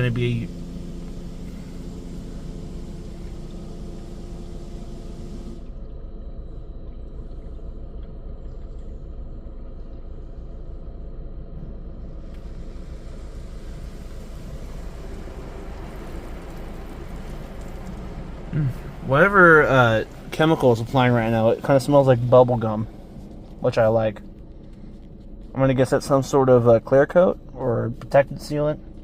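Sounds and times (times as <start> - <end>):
car wash machinery rumble: 0.0 - 29.0
spray hissing on car body: 0.1 - 5.6, 12.2 - 23.2.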